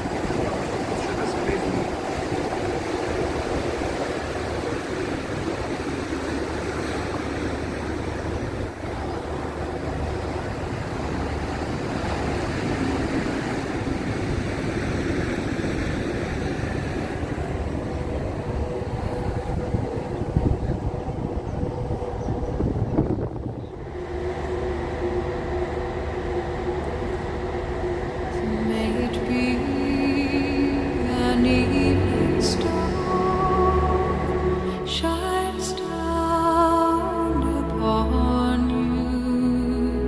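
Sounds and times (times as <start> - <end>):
water rushing: 0.0 - 38.4
ship engine rumble: 0.0 - 40.0
wind: 0.0 - 40.0.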